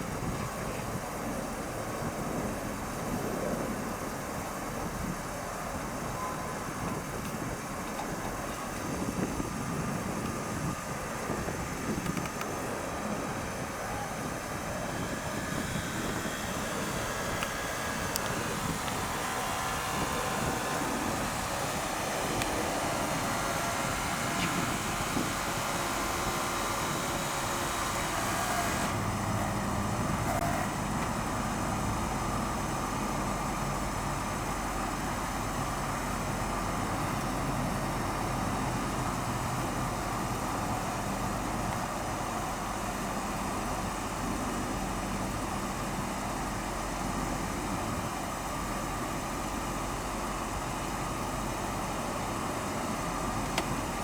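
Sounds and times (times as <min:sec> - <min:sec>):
road and wind noise: 0:00.0 - 0:54.0
car engine running: 0:06.7 - 0:33.9.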